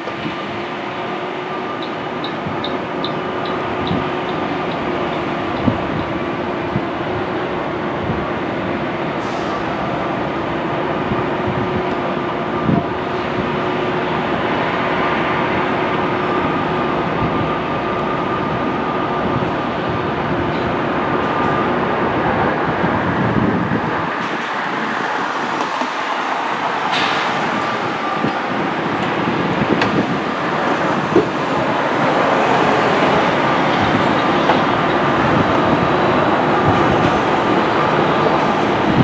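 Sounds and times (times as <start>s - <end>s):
train running hum: 0.0s - 39.0s.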